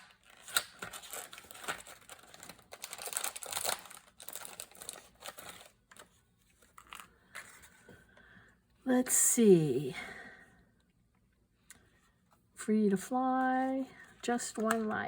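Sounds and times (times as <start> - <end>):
paper rustling and crinkling: 0.0 - 7.9.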